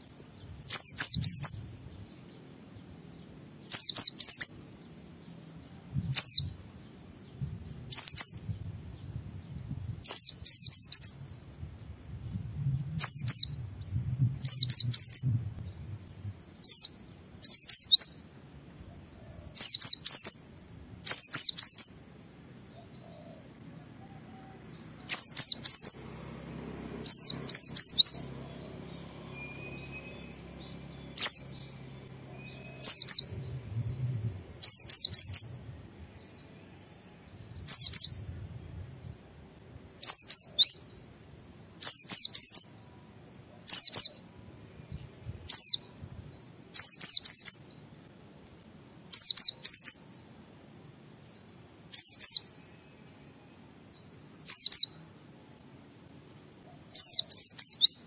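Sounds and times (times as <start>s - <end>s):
bird singing high descending notes: 0.4s - 2.3s, 3.2s - 18.2s, 22.7s - 39.1s.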